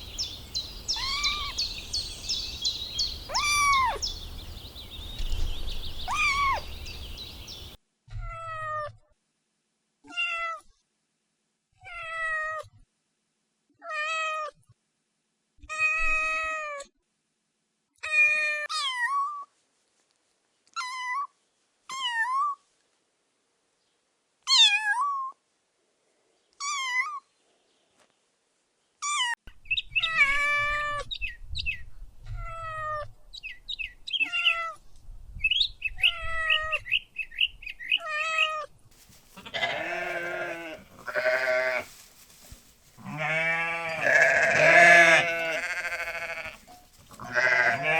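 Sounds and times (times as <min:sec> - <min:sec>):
kitten meowing: 0:00.9 - 0:01.6, 0:03.3 - 0:04.0, 0:06.1 - 0:06.6.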